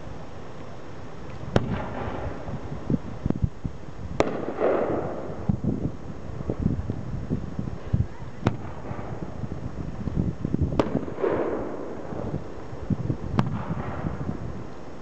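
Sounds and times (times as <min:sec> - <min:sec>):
firework crackle: 0:00.0 - 0:15.0
firework bangs: 0:01.5 - 0:03.0, 0:04.1 - 0:06.7, 0:07.8 - 0:10.0, 0:10.6 - 0:14.5.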